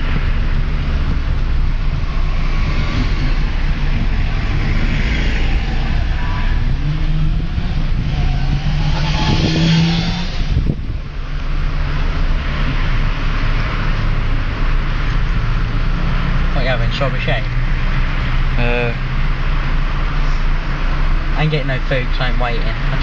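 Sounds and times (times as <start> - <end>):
car engine running: 0.0 - 23.0.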